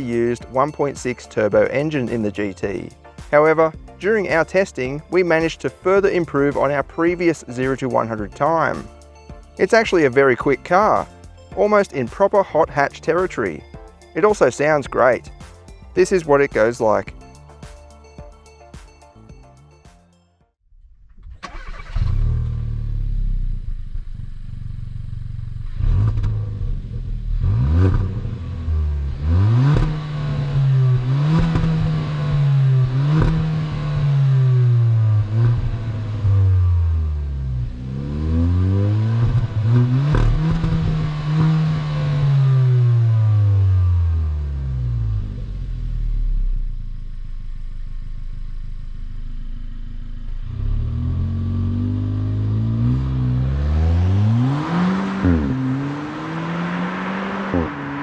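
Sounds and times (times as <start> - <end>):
car engine starting and revving: 20.8 - 58.0.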